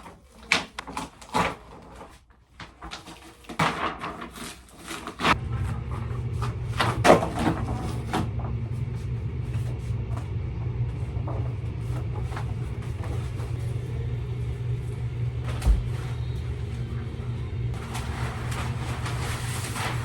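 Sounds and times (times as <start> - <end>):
low vehicle rumble: 5.4 - 20.0.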